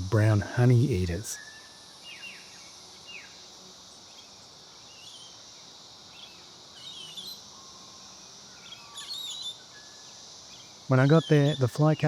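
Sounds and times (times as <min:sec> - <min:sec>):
high-pitched insect drone: 0:00.0 - 0:12.0
bird chirps: 0:11.0 - 0:12.0.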